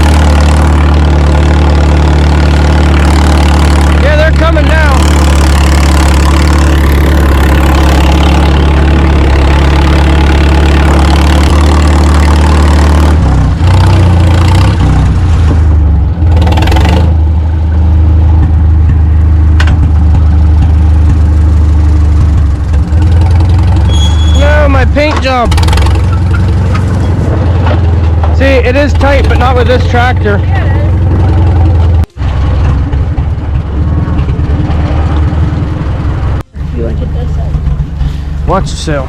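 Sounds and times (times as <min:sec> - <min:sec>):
tractor engine running: 0:00.0 - 0:39.0.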